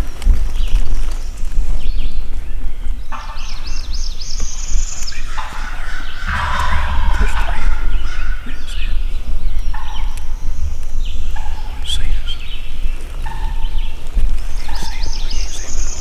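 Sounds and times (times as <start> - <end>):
songbirds chirping: 0.0 - 16.0
turkeys gobbling: 5.0 - 10.2
low rumble: 6.2 - 11.4.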